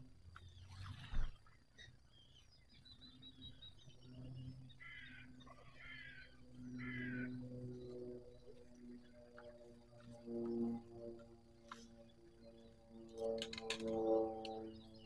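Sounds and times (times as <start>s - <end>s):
steady low hum: 0.0s - 15.0s
birds chirping: 0.4s - 9.6s
harsh bird calls: 4.7s - 7.4s.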